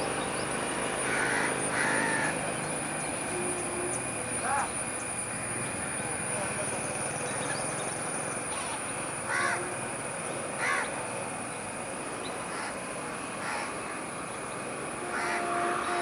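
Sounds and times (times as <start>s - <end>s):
crows cawing: 1.0s - 2.4s, 8.6s - 9.8s, 10.6s - 11.0s, 12.5s - 14.0s, 15.1s - 15.5s.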